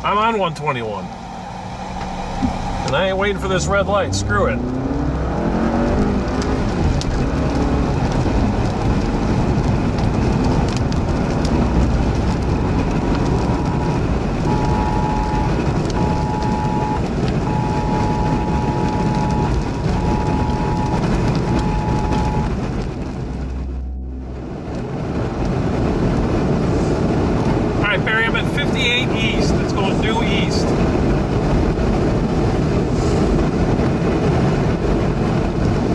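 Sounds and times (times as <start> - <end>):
heavy rain on car: 0.0 - 35.9
road noise inside car: 0.0 - 35.9
two-tone alert: 14.5 - 22.6.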